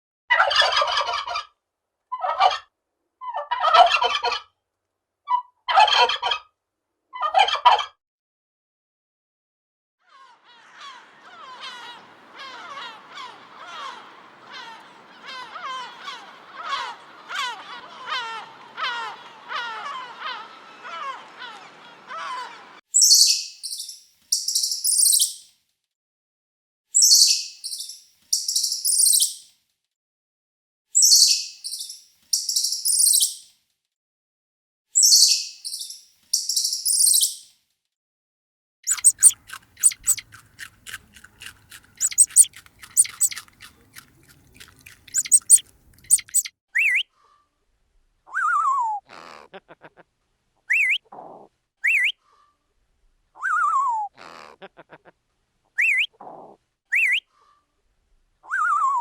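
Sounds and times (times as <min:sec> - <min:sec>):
shrill animal chirps: 0:10.5 - 0:20.6, 0:38.9 - 0:47.0, 0:50.7 - 0:51.0, 0:51.8 - 0:52.1, 0:55.8 - 0:56.2, 0:56.9 - 0:57.2
clicking chirps: 0:38.9 - 0:46.5
falling whistles: 0:51.9 - 0:52.1, 0:55.8 - 0:56.1, 0:57.0 - 0:57.2.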